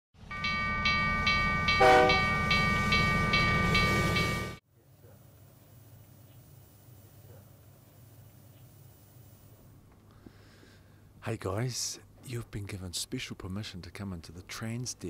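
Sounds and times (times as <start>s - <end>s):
train rumbling: 0.2s - 4.6s
rhythmic wheel clack: 0.4s - 4.6s
train horn blast: 1.8s - 2.4s.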